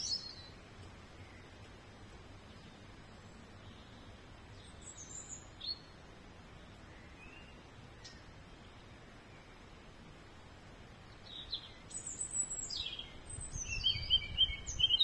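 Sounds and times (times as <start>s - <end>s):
outdoor background hiss: 0.0s - 15.0s
high bird chirps: 11.2s - 15.0s.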